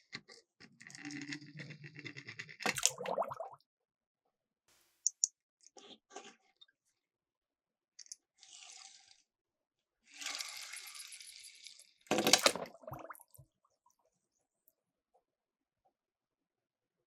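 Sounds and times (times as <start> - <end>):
splashing into water: 2.7 - 3.6, 12.1 - 13.4
toy car rolling down slope: 10.1 - 11.9.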